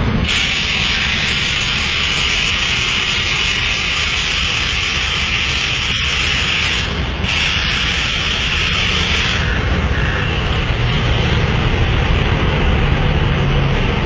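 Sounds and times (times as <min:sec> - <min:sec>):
bus air suspension hissing: 0:00.0 - 0:10.8.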